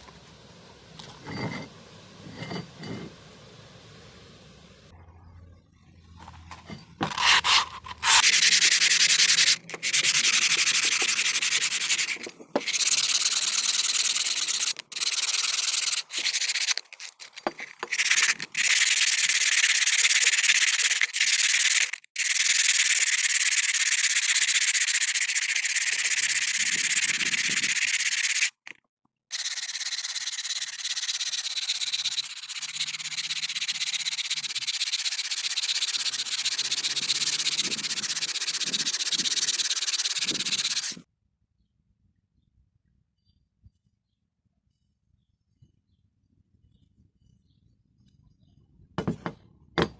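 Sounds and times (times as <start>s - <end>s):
abrasive sanding hiss: 8.2s - 28.6s, 29.4s - 41.0s.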